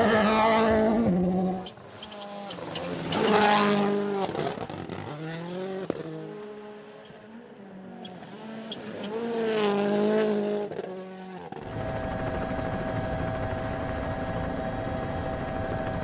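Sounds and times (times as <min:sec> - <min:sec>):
rally car engine at high revs: 0:00.0 - 0:11.7.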